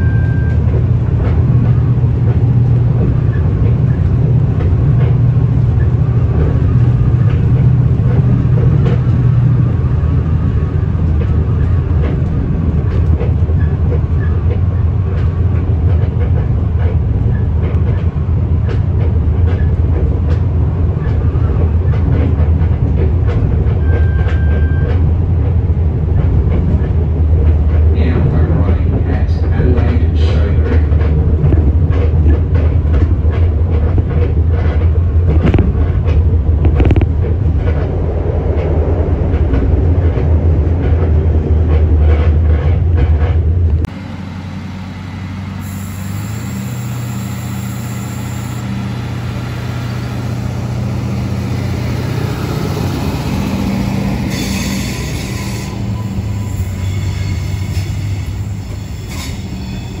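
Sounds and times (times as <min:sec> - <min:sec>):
rail joint clicks: 0:00.0 - 0:44.1, 0:44.8 - 1:00.0
diesel railcar engine hum: 0:00.0 - 1:00.0
train cabin rumbling: 0:00.0 - 1:00.0
wheel squeals: 0:23.8 - 0:25.0, 0:54.2 - 1:00.0.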